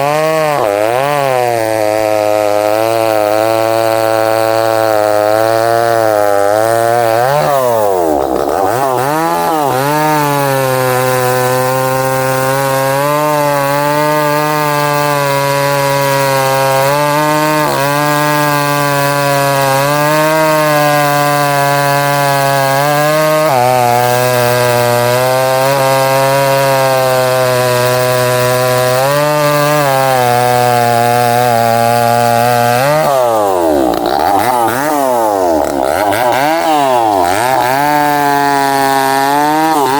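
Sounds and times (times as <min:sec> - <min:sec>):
chainsaw cutting through a trunk: 0:00.0 - 0:39.9.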